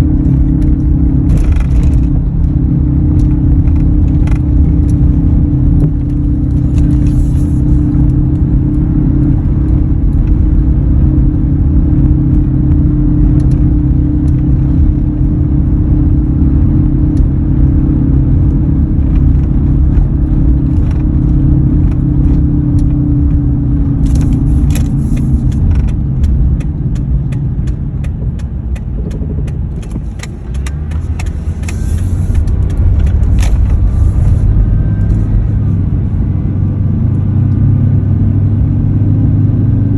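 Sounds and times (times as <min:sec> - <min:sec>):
low hum: 0:00.0 - 0:39.9
truck engine rumble: 0:00.0 - 0:39.9.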